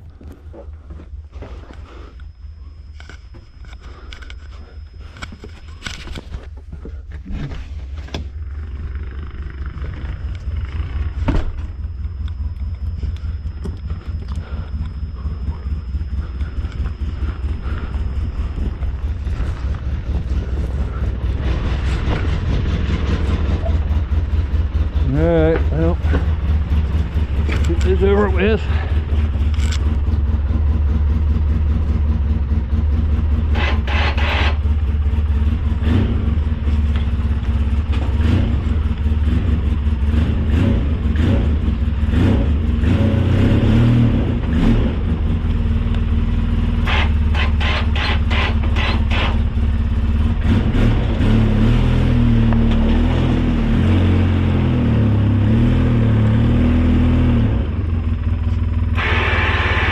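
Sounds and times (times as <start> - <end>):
snow plow engine running: 0.0 - 59.9.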